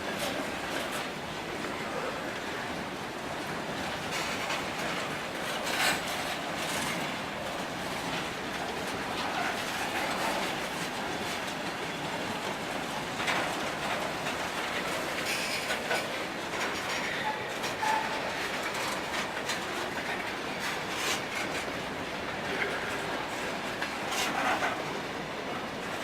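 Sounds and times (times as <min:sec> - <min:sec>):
train wheels rolling on rail: 0:00.0 - 0:26.0
clicks over rail joints: 0:12.4 - 0:25.0.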